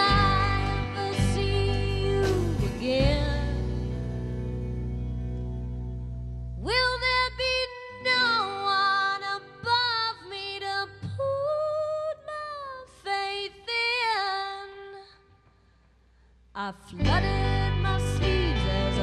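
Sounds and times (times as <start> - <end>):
woman singing long notes: 16.6 - 19.0.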